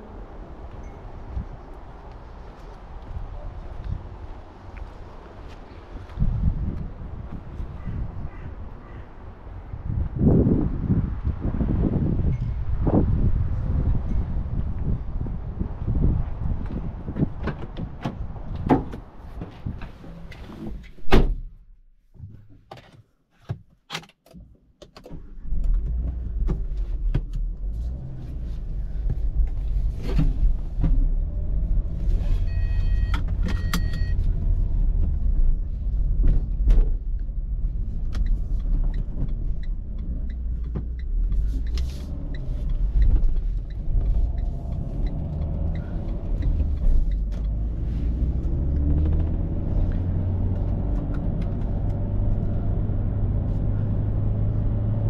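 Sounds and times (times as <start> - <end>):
car engine starting and running: 25.0 - 55.0
electronic dashboard chime: 32.5 - 34.2.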